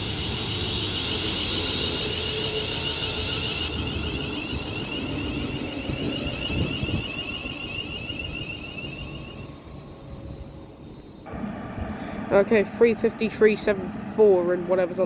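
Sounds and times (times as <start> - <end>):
train high-pitched whine: 0.0 - 15.0
low rumble: 3.6 - 15.0.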